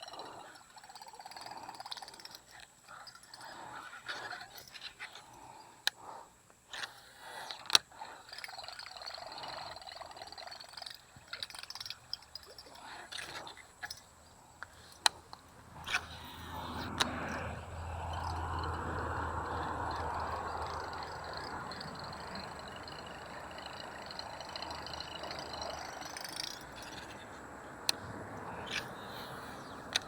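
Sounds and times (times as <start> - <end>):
frogs and insects chorus: 0.0 - 30.0
sharp clicks: 19.4 - 30.0.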